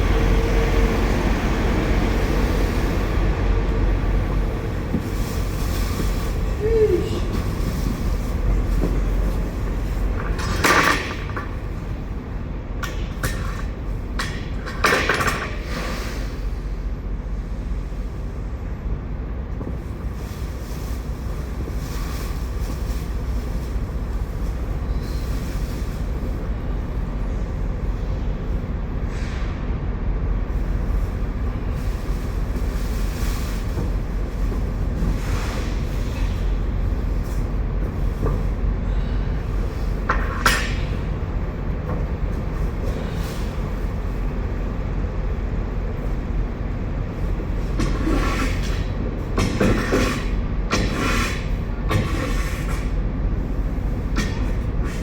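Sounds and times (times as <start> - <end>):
low machine rumble: 0.0 - 55.0
potatoes scraped from trailer floor: 31.6 - 36.6, 47.8 - 53.0.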